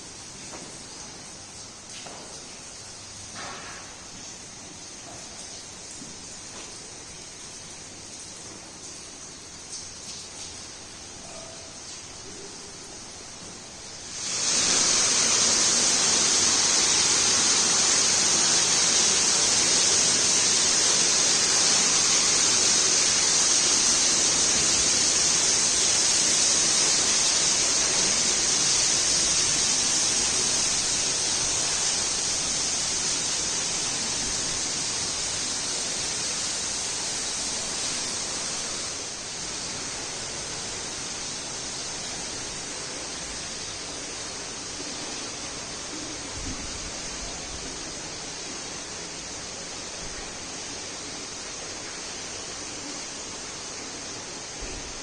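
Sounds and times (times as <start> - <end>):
water rushing: 13.9 - 55.0.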